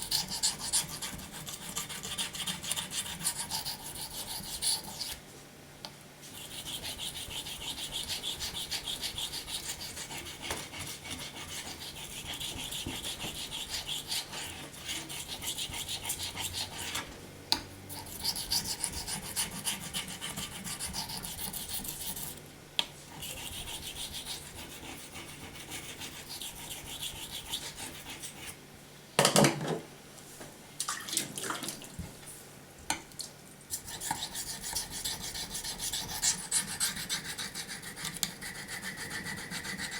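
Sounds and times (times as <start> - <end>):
knife sharpening on whetstone: 17.9 - 22.3, 33.8 - 39.9.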